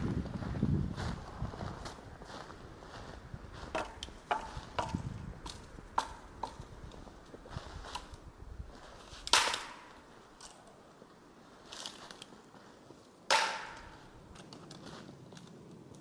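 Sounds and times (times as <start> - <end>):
faint ticks and crunches: 1.6 - 13.2, 13.8 - 16.0
dry wood cracking: 3.6 - 16.0.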